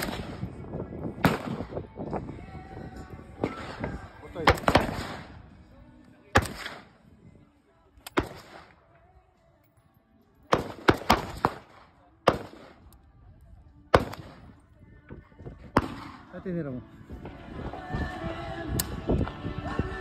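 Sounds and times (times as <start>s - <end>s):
gunshots with echo: 3.4s - 5.3s, 10.5s - 12.8s, 13.9s - 14.4s.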